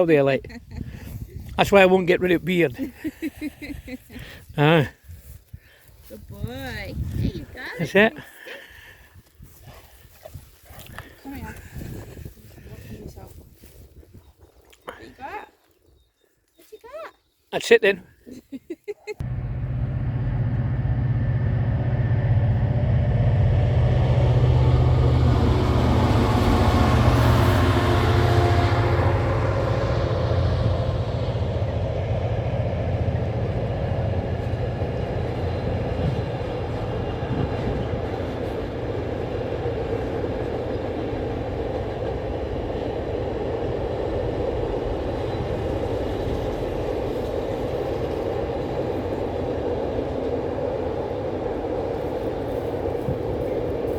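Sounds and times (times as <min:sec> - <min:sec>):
diesel locomotive engine hum: 0:19.2 - 0:53.9
train wagons rumbling past: 0:19.2 - 0:53.9.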